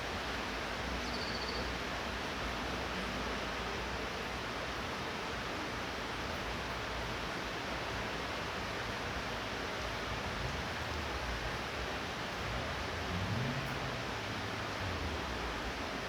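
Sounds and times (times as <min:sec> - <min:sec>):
light rain falling: 0:00.0 - 0:16.0.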